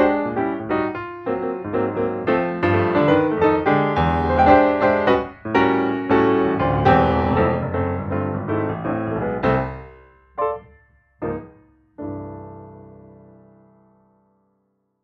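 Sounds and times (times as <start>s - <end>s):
piano music: 0.0s - 14.6s.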